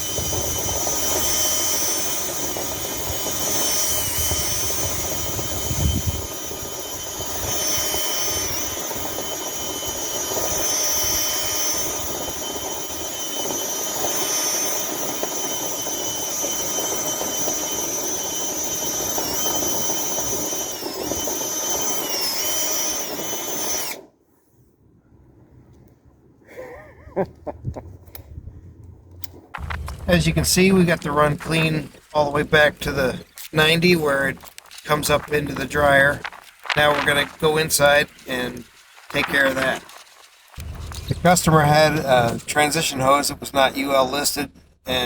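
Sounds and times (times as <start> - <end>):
motor whining: 0.0 - 24.1, 29.0 - 41.4.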